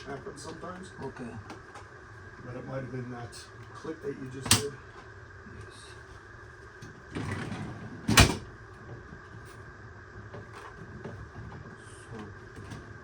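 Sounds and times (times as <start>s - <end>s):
drawer sliding rattle: 7.1s - 8.5s.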